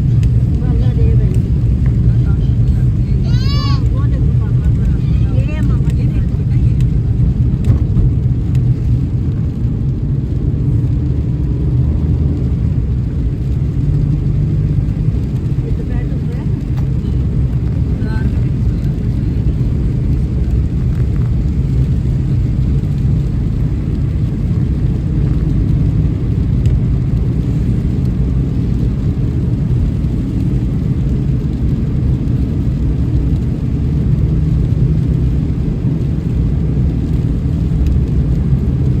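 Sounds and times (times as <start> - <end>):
car driving low rumble: 0.0 - 39.0.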